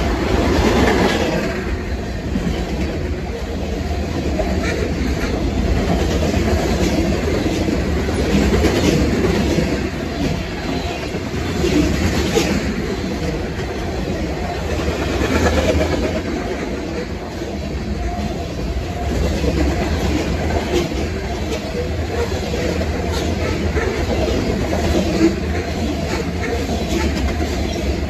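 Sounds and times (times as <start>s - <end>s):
freight train rolling past: 0.0s - 28.0s.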